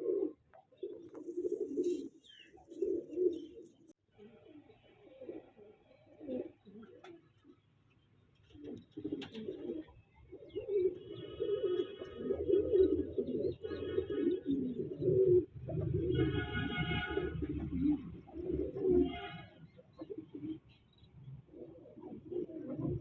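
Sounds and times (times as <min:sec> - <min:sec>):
pigeons cooing: 0:00.0 - 0:07.7, 0:08.3 - 0:23.0.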